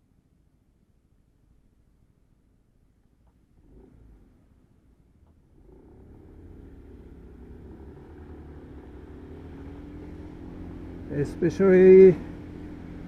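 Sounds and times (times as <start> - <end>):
motorbike engine pulling away: 5.5 - 13.0.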